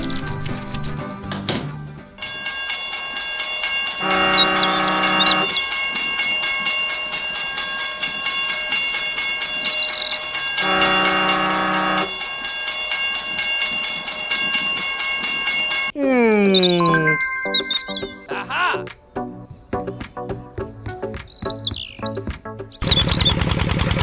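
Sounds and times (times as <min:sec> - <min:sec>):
train horn: 0:04.0 - 0:05.6, 0:10.6 - 0:12.1.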